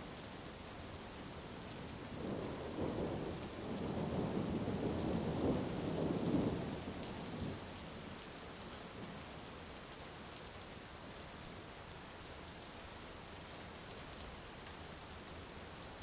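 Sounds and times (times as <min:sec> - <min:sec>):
heavy rain hissing: 0:02.1 - 0:07.9.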